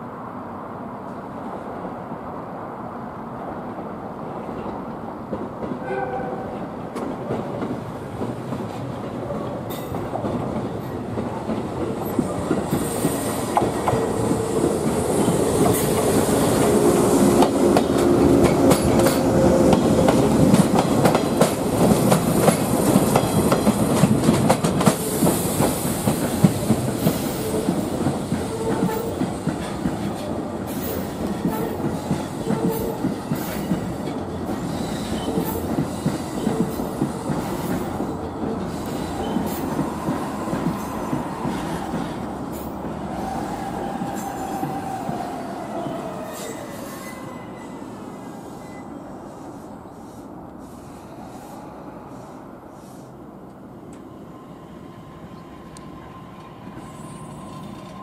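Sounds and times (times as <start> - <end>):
train wheels clacking over joints: 6.9 - 45.4
train wheel squeal: 12.1 - 14.2, 24.8 - 52.3, 54.0 - 58.0.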